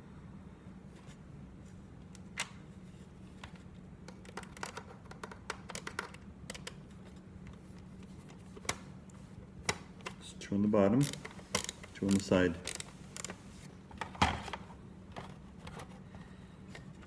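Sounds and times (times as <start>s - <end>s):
low steady hum: 0.0s - 17.0s
plastic parts and screws clicking: 11.0s - 13.4s.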